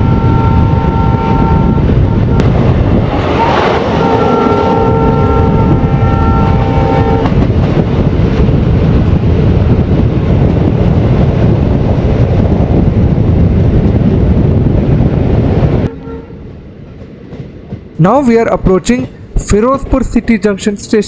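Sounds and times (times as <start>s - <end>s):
train horn: 0.0s - 2.5s, 3.3s - 7.4s, 15.8s - 16.5s
moving train rumble: 0.0s - 21.0s.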